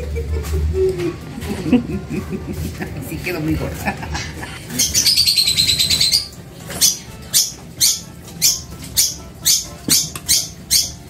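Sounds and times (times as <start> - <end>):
bird trilling and chirping: 4.7 - 11.0.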